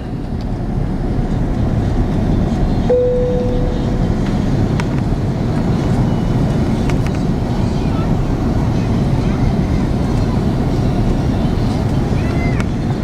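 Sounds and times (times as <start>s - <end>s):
airliner cabin engine rumble: 0.0s - 13.0s
clear tone: 2.9s - 4.8s.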